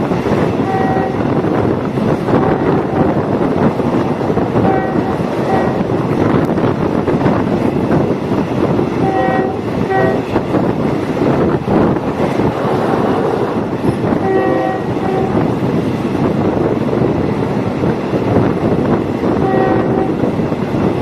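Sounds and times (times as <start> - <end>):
train rumbling along track: 0.0 - 21.0
train horn blasts: 0.6 - 1.3, 2.3 - 3.2, 4.6 - 6.0, 9.0 - 10.4, 14.1 - 15.6, 19.3 - 20.3.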